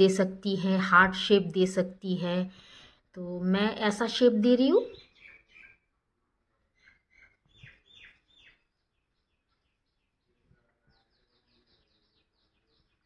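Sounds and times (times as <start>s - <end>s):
faint bird chirps: 4.8s - 5.9s, 6.5s - 13.0s.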